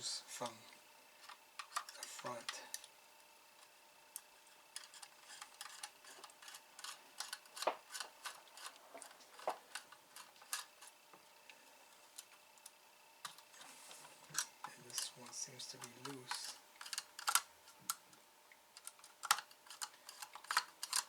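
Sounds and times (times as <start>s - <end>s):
screwdriver clicking on plastic: 4.2s - 10.9s, 14.3s - 18.0s, 18.8s - 21.0s.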